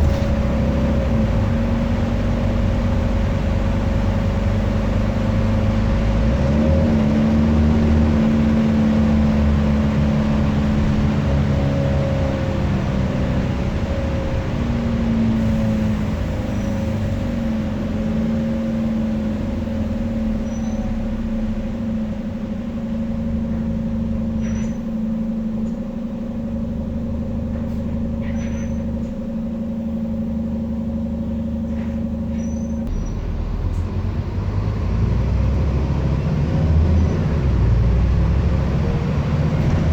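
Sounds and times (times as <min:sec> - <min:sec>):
bus engine whine: 0:00.0 - 0:39.9
low engine rumble: 0:00.0 - 0:39.9
squeaks and rattles: 0:24.3 - 0:25.1, 0:27.4 - 0:29.2, 0:31.6 - 0:33.2.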